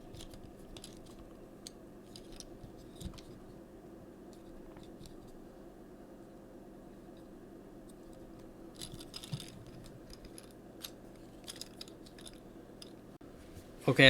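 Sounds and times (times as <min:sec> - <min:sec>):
plastic clicks and rattling: 0:00.0 - 0:03.4, 0:08.8 - 0:13.0
steady low hum: 0:00.0 - 0:14.0.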